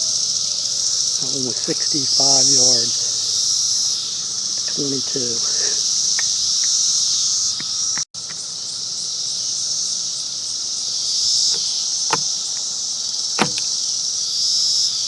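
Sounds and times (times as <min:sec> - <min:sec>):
crickets chirping: 0:00.0 - 0:15.0
sharp clicks: 0:13.4 - 0:13.7.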